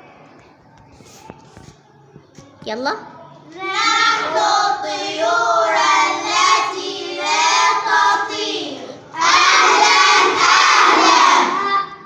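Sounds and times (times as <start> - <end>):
children shouting together: 3.6 - 12.0
children singing in chorus: 3.6 - 12.0.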